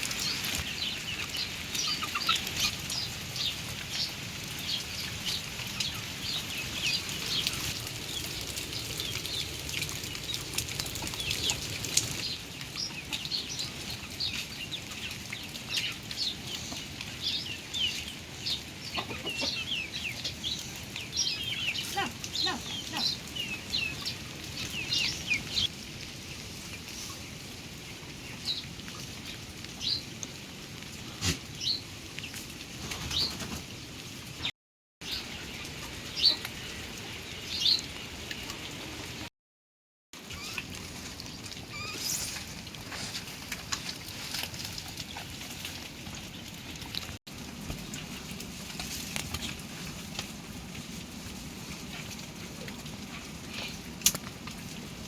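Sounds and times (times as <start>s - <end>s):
rain pattering: 0.0s - 39.3s, 40.2s - 55.0s.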